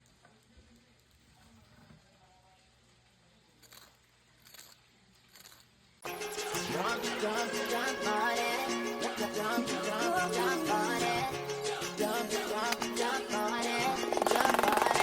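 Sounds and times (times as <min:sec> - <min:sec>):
loud upbeat music: 0:06.0 - 0:15.0.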